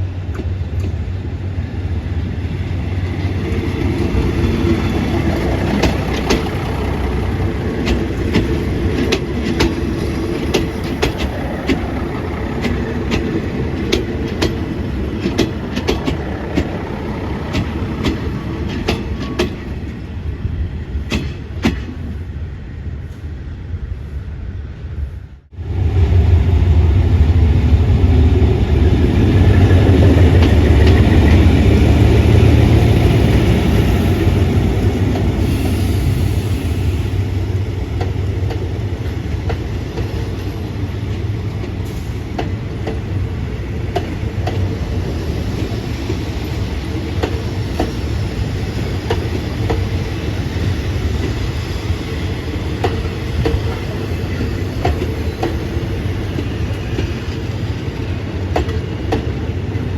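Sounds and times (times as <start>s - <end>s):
train rumbling past: 0.0s - 59.9s
wheels clicking over rail joints: 3.0s - 20.0s.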